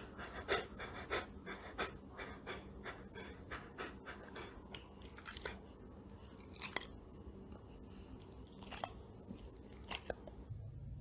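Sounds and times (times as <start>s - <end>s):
faint crunchy chewing: 1.8s - 10.5s.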